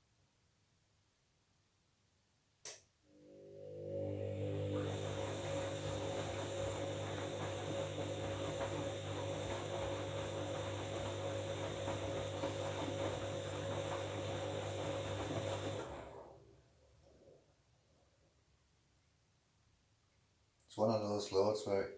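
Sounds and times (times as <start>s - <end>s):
washing machine running: 3.2s - 16.7s.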